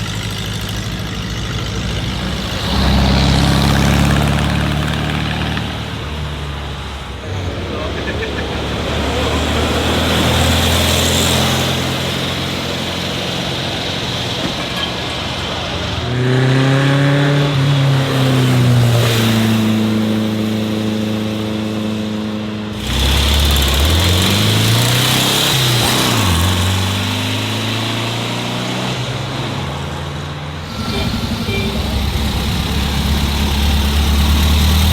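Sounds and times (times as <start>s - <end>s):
car engine revving: 0.0s - 34.9s.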